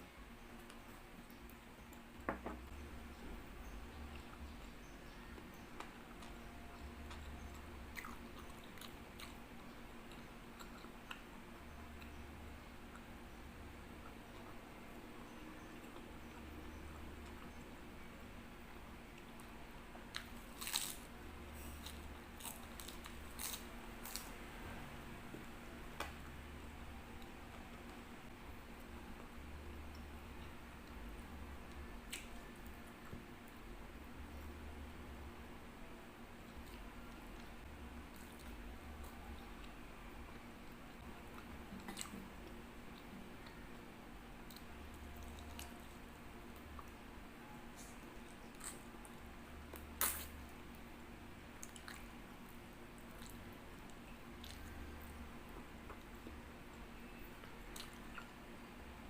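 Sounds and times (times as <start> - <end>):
faint low hum: 0.0 - 59.0
person chewing: 5.4 - 11.3, 20.1 - 24.4, 47.8 - 50.4, 51.6 - 52.2, 53.0 - 56.3, 57.4 - 58.4
person biting and chewing: 20.1 - 24.4, 49.7 - 50.3
wet mouth clicks: 49.8 - 50.3.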